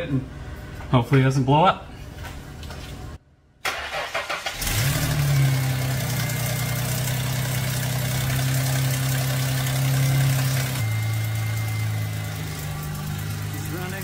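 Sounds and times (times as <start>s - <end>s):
car engine starting and idling: 3.6s - 14.0s.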